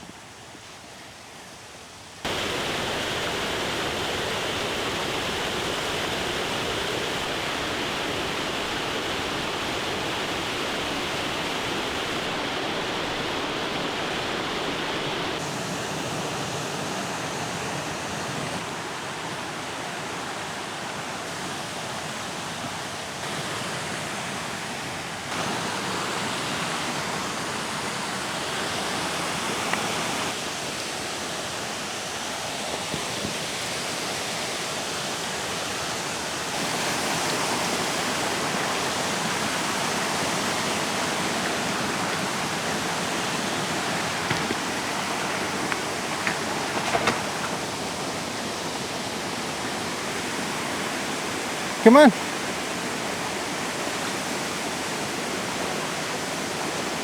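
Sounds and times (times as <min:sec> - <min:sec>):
rushing stream water: 0:00.0 - 0:57.0.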